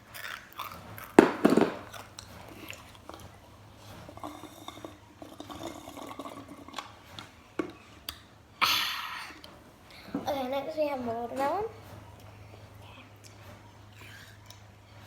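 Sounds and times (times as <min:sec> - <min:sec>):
person chewing: 0:00.1 - 0:01.2
loud thump: 0:01.2 - 0:02.0.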